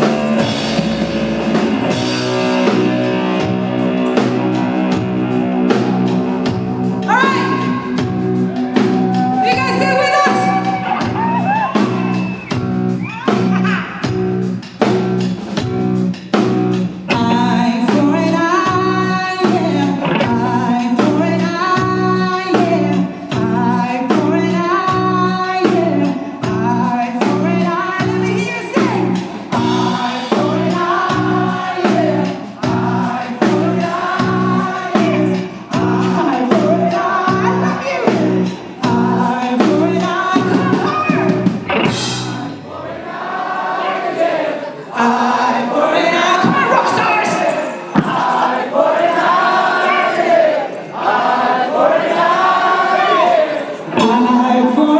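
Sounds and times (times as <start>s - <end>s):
drum beat: 0.0s - 21.2s, 27.3s - 42.6s, 46.1s - 53.4s
bass: 0.0s - 42.7s
guitar: 0.0s - 54.9s
singing voice: 1.9s - 14.6s, 16.9s - 54.9s.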